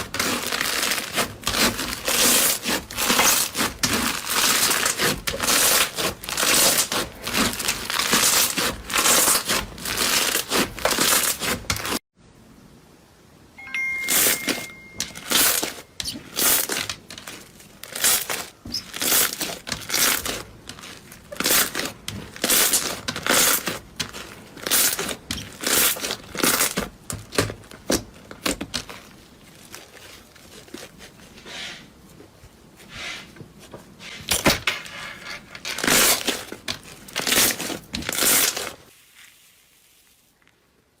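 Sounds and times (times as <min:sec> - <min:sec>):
crunchy material crushed by hand: 0:00.0 - 0:12.0, 0:15.2 - 0:31.4, 0:35.6 - 0:39.4.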